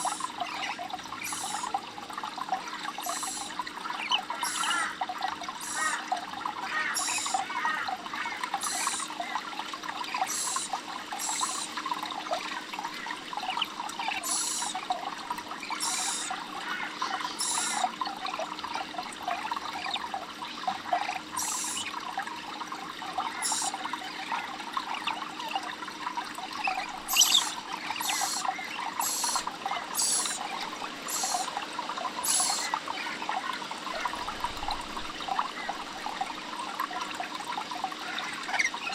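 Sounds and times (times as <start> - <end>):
high-pitched bird calls: 0.0 - 1.8, 3.0 - 5.0, 5.6 - 6.0, 6.7 - 7.8, 8.6 - 9.2, 10.2 - 11.8, 13.4 - 14.8, 15.7 - 16.4, 17.0 - 17.9, 21.1 - 22.0, 23.3 - 23.8, 26.5 - 31.5, 32.2 - 32.8
water trickling and babbling: 0.0 - 38.9.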